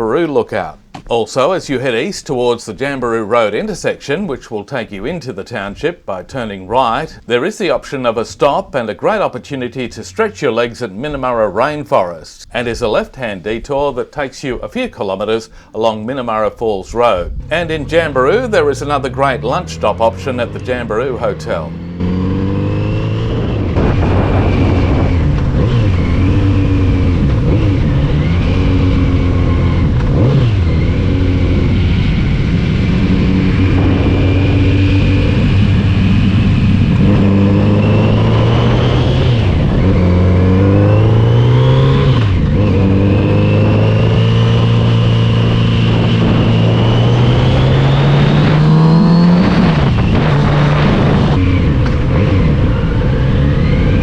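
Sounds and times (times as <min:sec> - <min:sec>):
motorcycle engine accelerating: 0:16.8 - 0:54.0.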